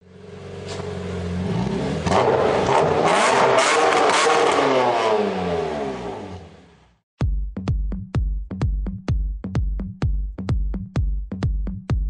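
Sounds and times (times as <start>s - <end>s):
car engine revving: 0.0s - 7.0s.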